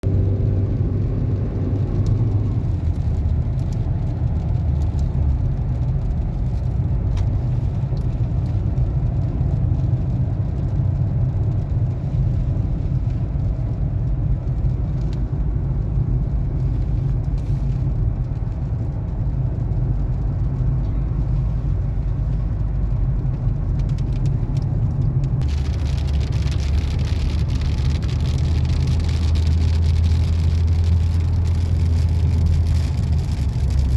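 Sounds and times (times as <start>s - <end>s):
car engine and road rumble: 0.0s - 33.9s
hiss of rain on wet road: 1.7s - 33.9s
raindrops tapping: 1.8s - 33.9s.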